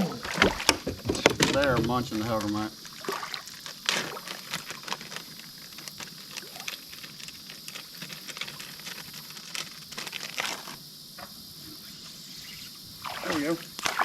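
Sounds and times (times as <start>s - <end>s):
creek water rushing: 13.0s - 14.0s.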